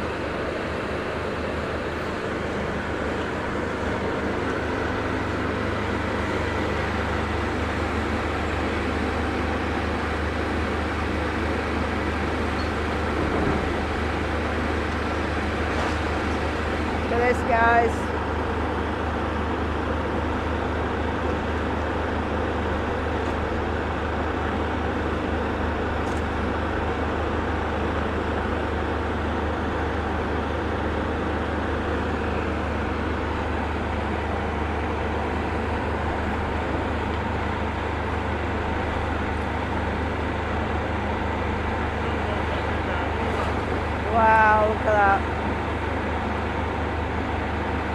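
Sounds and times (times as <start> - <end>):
diesel engine rumbling: 0.0 - 47.9
road traffic: 0.0 - 47.9.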